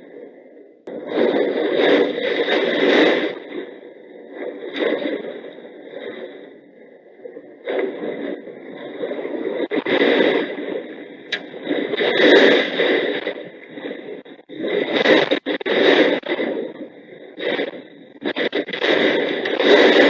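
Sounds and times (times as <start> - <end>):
storm wind gusting on microphone: 7.6 - 20.0.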